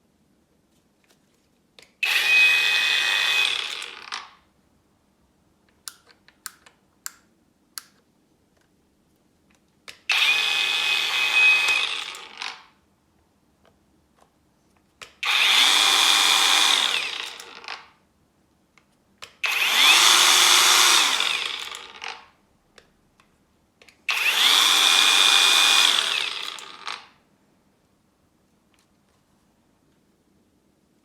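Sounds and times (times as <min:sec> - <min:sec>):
angle grinder whining: 0:02.0 - 0:04.2, 0:10.1 - 0:12.5, 0:15.2 - 0:17.8, 0:19.4 - 0:22.2, 0:24.1 - 0:27.1.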